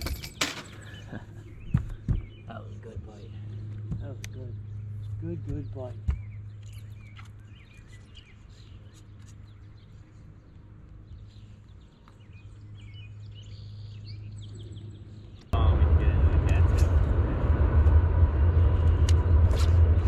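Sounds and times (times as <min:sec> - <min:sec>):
small birds chirping: 0:00.0 - 0:15.7
steady low hum: 0:12.3 - 0:20.0
loud rumbling noise: 0:15.6 - 0:20.0.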